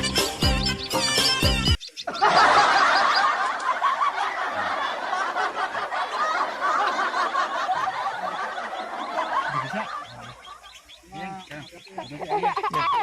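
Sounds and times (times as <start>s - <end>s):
baby birds chirping: 0.0s - 3.5s, 7.4s - 13.0s.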